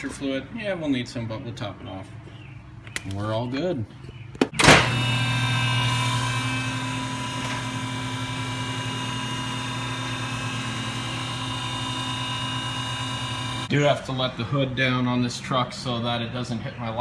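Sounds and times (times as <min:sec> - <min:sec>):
hydraulic pump motor humming: 0:04.6 - 0:13.7.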